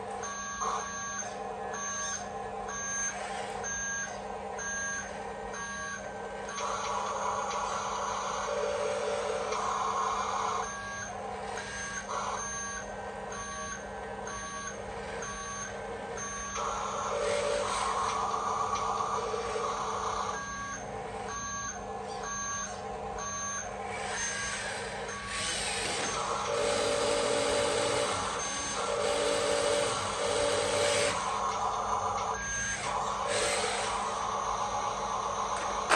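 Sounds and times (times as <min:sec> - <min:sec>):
reversing beeper beeps: 0:00.3 - 0:06.7, 0:20.3 - 0:24.5.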